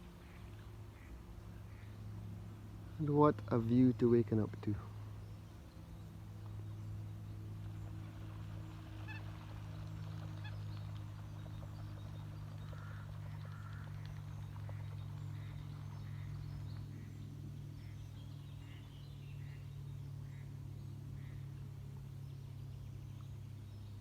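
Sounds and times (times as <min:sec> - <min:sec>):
steady low hum: 0:00.0 - 0:24.0
waterfowl calling: 0:00.2 - 0:02.0, 0:08.9 - 0:20.5, 0:21.2 - 0:21.5.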